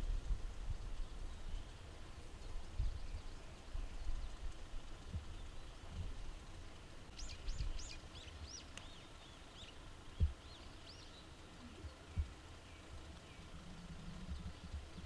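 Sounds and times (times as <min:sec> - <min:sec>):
small birds chirping: 0:00.1 - 0:15.0.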